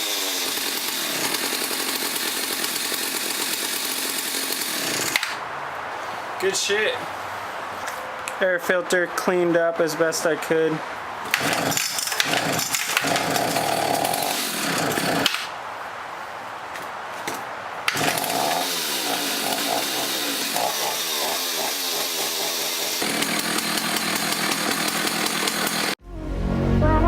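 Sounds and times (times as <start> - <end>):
chainsaw revving and idling: 0.0 - 5.4, 11.3 - 15.5, 17.9 - 26.0.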